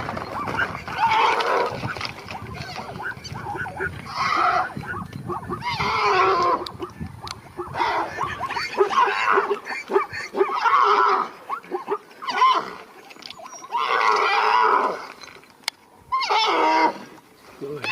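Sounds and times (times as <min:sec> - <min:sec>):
zebra braying: 0:00.0 - 0:15.1.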